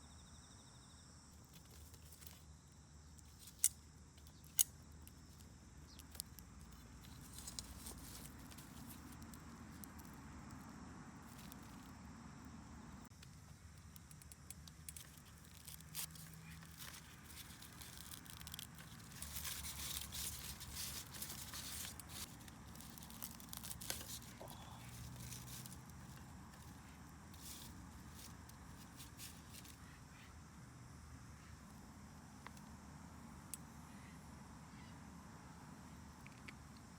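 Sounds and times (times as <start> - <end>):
crackling and rustling clicks: 3.1 - 12.0, 13.1 - 29.8.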